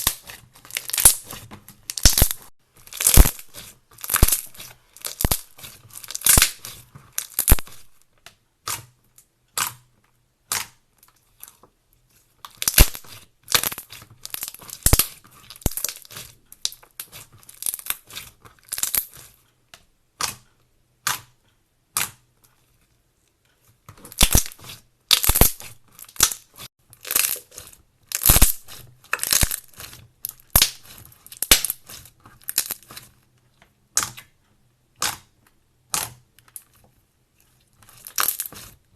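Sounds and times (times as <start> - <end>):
crunchy material crackling and snapping: 0.0 - 8.1, 12.3 - 19.4, 23.9 - 33.4, 35.0 - 38.9.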